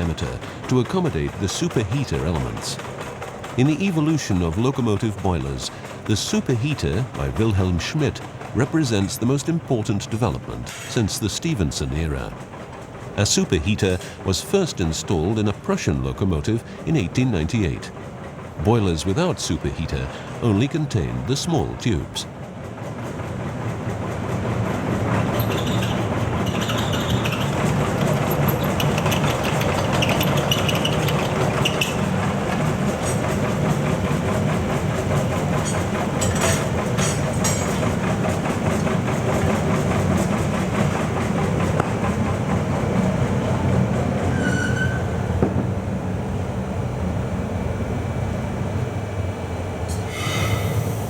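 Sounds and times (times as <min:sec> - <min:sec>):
workshop machinery clattering: 0:00.0 - 0:22.0, 0:24.2 - 0:45.8
sharp metallic knocks: 0:35.6 - 0:37.9.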